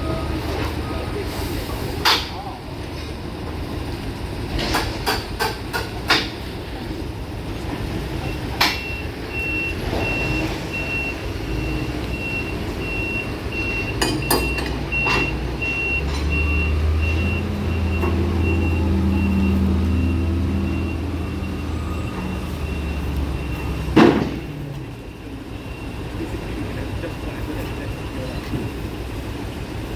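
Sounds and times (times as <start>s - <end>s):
reversing alarm beeping: 0.0s - 1.6s, 8.1s - 29.5s
diesel engine running: 0.0s - 29.9s.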